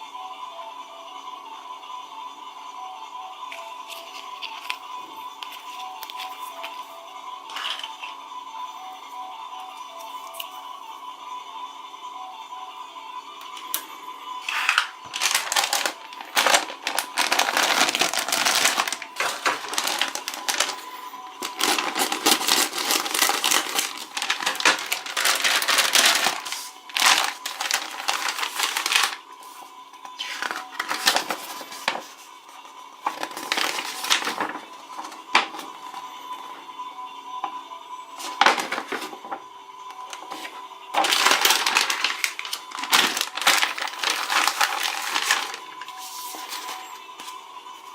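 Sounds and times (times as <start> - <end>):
faint background music: 0.0 - 47.9
packaging crinkling and tearing: 3.9 - 4.8, 14.4 - 29.2, 30.2 - 32.2, 33.0 - 35.6, 38.2 - 39.2, 40.2 - 46.8.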